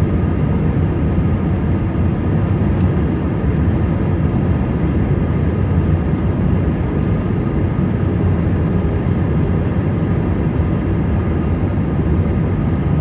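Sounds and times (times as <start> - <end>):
airliner low rumble: 0.0 - 13.0.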